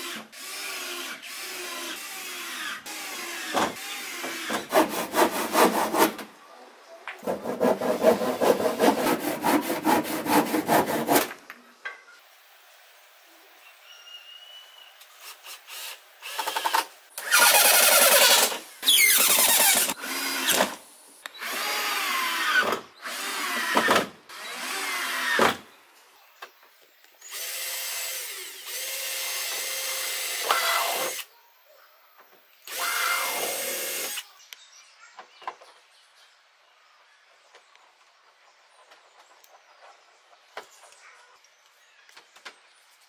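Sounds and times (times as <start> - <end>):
cordless drill boring through wood: 0.0 - 4.6, 15.2 - 20.8, 21.4 - 25.6, 27.2 - 31.3, 32.6 - 34.3.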